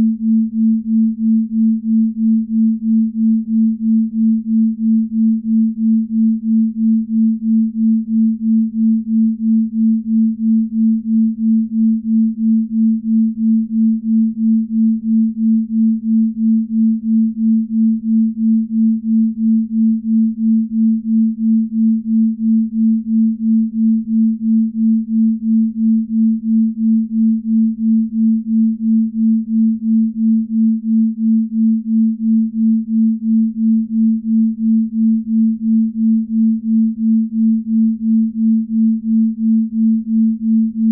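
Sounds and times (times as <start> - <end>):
pulsing low pure tone: 0.0 - 40.9.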